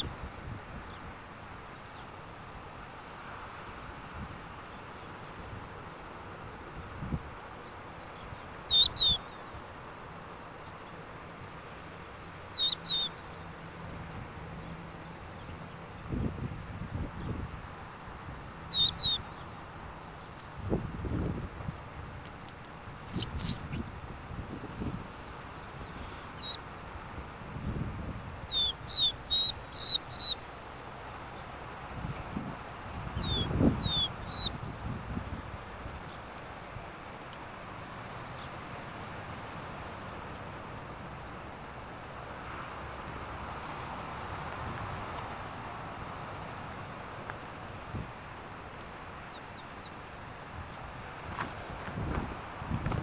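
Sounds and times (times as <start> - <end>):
steady background hiss: 0.0 - 53.0
bird chirping: 7.6 - 9.6, 12.2 - 13.5, 18.7 - 20.4, 23.0 - 23.9, 25.6 - 26.7, 28.5 - 30.6, 33.2 - 34.6
songbird calling high notes: 7.6 - 9.6, 12.2 - 13.5, 18.7 - 19.6, 23.0 - 23.9, 25.9 - 26.7, 28.5 - 30.6, 33.2 - 34.6.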